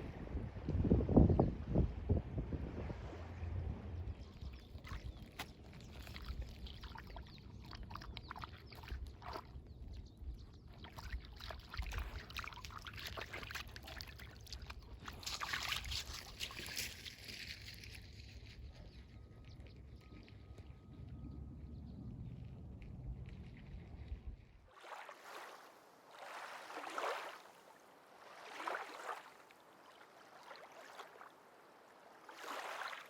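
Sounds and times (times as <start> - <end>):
low wind rumble: 0.0 - 6.6, 17.2 - 24.7
lake water lapping at shore: 2.4 - 18.6, 24.7 - 33.0.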